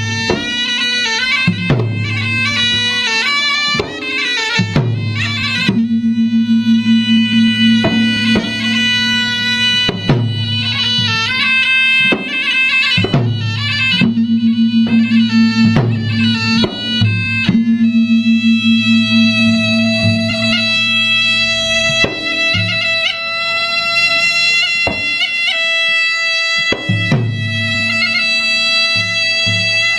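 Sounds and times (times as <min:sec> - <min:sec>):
reedy wind instrument melody: 0:00.0 - 0:29.9
sharp drum strikes: 0:00.3 - 0:00.7, 0:03.7 - 0:23.3, 0:26.7 - 0:27.3
low drone: 0:03.5 - 0:11.5, 0:13.5 - 0:24.0.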